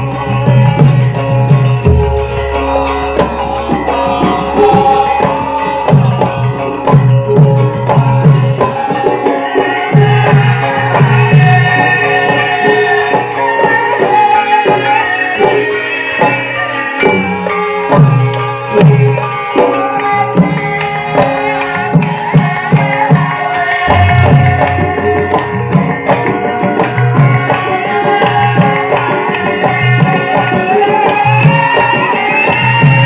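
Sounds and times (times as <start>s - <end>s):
hand drum strokes: 17.0s - 33.0s.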